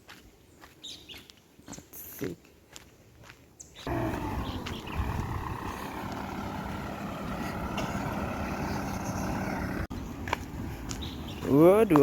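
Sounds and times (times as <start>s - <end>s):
heavy vehicle engine humming: 3.9s - 9.9s.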